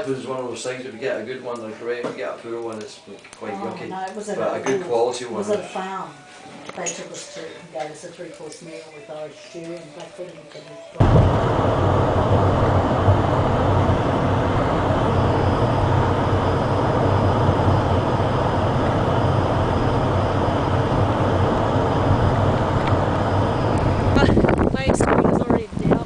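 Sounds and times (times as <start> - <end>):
faint high whine: 11.0 - 26.0
moving vehicle rumble: 11.0 - 26.0.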